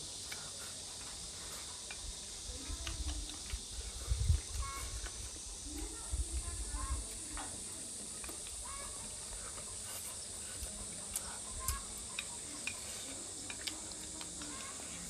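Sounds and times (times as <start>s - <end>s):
steady hiss: 0.0s - 15.0s
chewing clicks: 1.8s - 3.8s, 9.5s - 15.0s.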